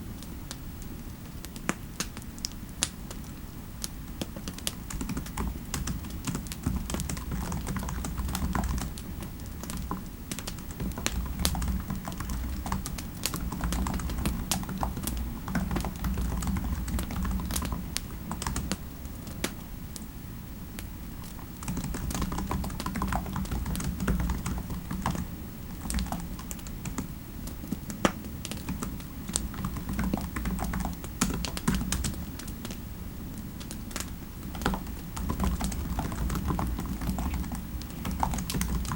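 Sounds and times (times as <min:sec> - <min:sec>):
steady low rumble: 0:10.9 - 0:27.4.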